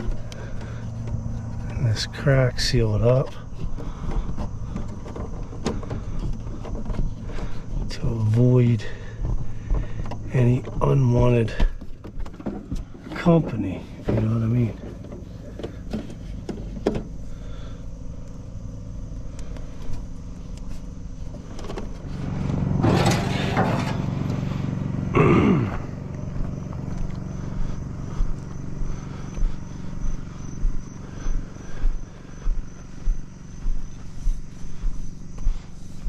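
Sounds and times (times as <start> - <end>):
regular thuds: 0.0 - 24.5
low engine hum: 0.0 - 36.0
motor vehicle passing: 17.1 - 36.0.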